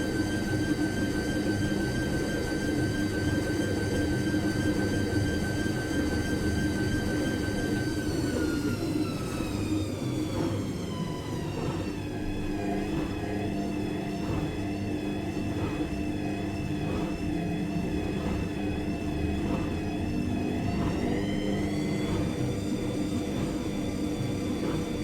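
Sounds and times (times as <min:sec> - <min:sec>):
washing machine motor whine: 0:00.0 - 0:25.0
washing machine drum rumble: 0:06.9 - 0:25.0.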